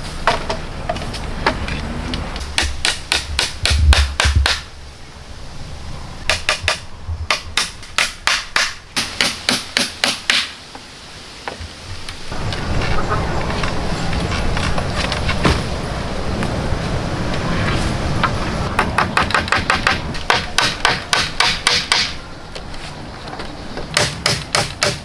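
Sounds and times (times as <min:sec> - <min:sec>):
rapid hammer blows: 0:02.4 - 0:04.7, 0:06.3 - 0:10.6, 0:18.2 - 0:22.2, 0:23.9 - 0:25.0.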